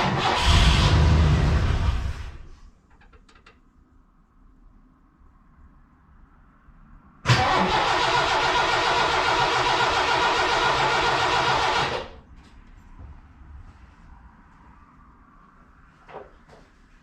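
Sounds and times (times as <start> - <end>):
car starter cranking: 0.0 - 1.8, 7.3 - 12.2.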